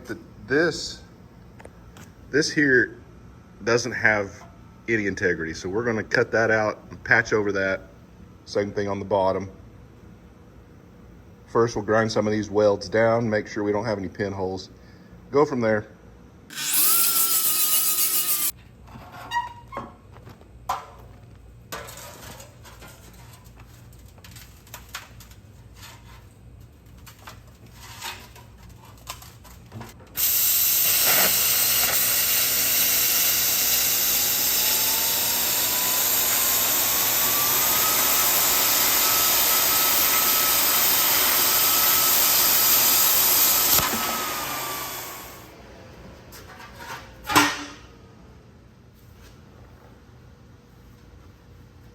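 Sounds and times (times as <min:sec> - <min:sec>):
grinder grinding metal: 0:16.5 - 0:18.6, 0:30.2 - 0:45.5
scrapes and knocks: 0:21.7 - 0:30.0.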